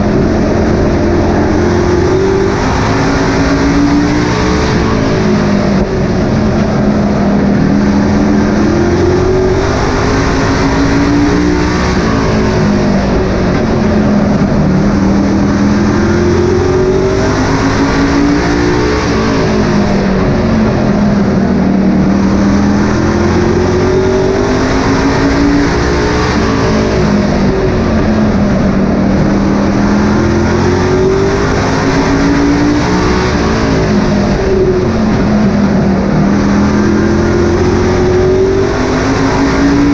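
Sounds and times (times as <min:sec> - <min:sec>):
race truck engines roaring: 0:00.0 - 0:39.9.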